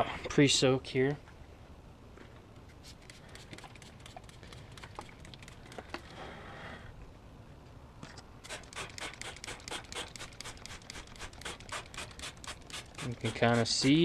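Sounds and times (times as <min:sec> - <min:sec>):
spray bottle squirting: 0:02.8 - 0:05.9, 0:08.4 - 0:14.0.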